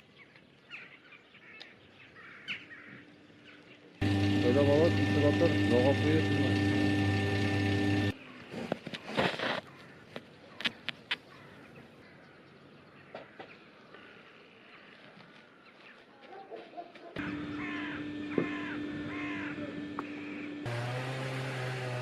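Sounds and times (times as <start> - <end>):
steady hum: 4.0 - 8.1, 17.2 - 21.3.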